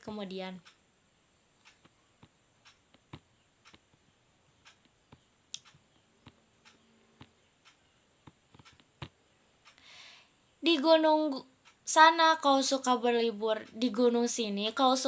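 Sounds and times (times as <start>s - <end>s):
faint small clicks: 1.6s - 4.0s, 4.6s - 9.9s.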